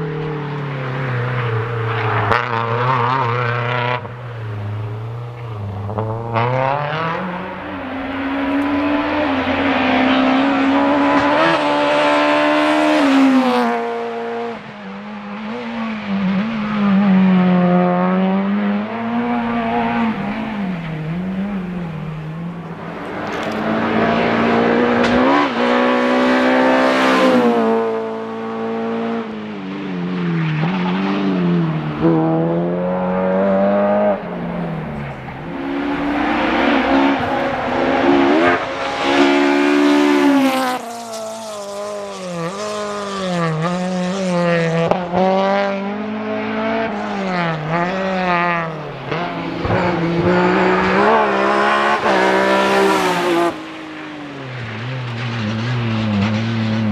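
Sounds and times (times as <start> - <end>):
car engine revving hard: 5.8 - 14.6, 35.5 - 53.8.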